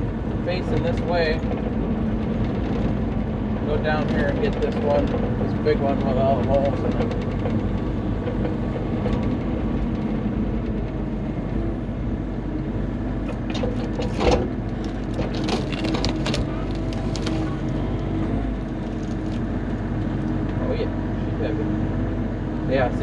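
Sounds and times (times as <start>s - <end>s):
excavator diesel engine running: 0.0s - 23.0s
knocks and wood cracking: 13.2s - 20.3s.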